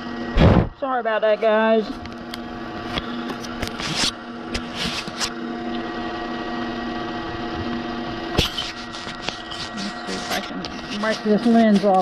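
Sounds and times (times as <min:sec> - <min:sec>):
wood lathe humming: 0:01.4 - 0:12.0
short scrapes and clicks: 0:02.9 - 0:05.4, 0:08.3 - 0:12.0.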